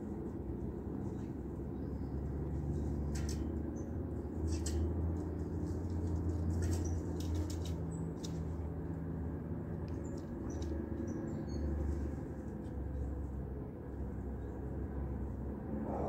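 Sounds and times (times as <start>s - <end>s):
low rumble: 15.6s - 16.0s.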